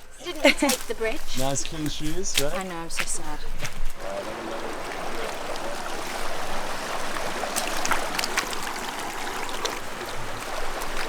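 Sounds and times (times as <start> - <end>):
running water stream: 0.0 - 11.0.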